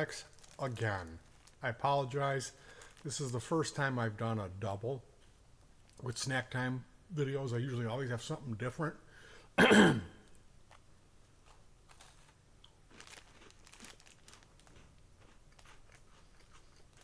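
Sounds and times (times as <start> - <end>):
biscuit packaging crinkling: 0.0 - 3.8, 10.7 - 17.0.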